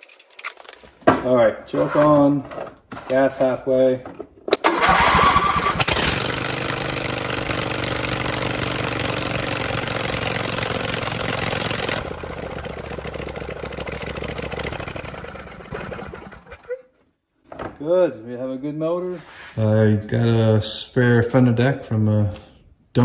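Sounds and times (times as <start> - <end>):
lawn tractor engine running: 4.6 - 16.7.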